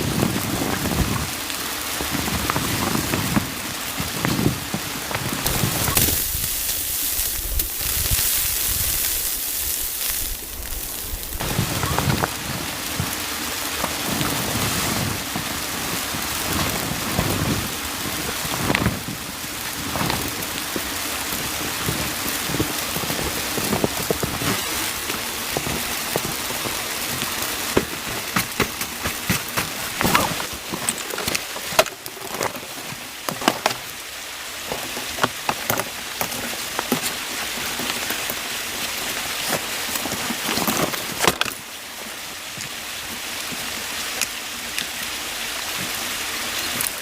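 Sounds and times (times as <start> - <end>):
rain falling on a surface: 0.0 - 47.0.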